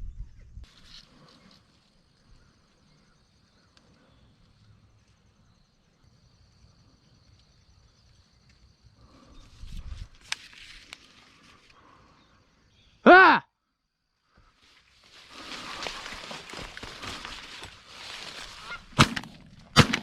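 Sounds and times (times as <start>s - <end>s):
rustling: 14.5s - 19.8s.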